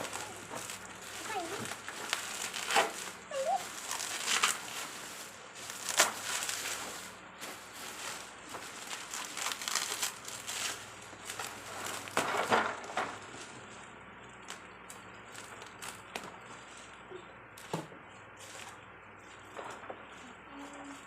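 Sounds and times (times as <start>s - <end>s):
toy packaging crinkling: 0.0s - 4.7s, 8.0s - 12.2s.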